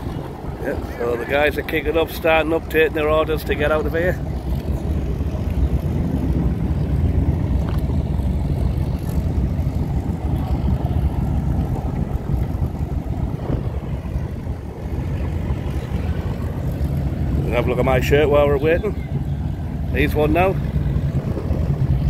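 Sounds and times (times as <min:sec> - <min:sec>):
car engines rumbling: 0:00.0 - 0:22.0.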